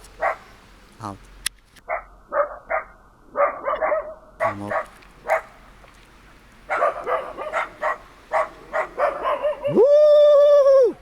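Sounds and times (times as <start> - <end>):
dogs barking: 0.1 - 0.5, 1.8 - 5.7, 6.7 - 9.8
person shouting woo: 9.7 - 11.0.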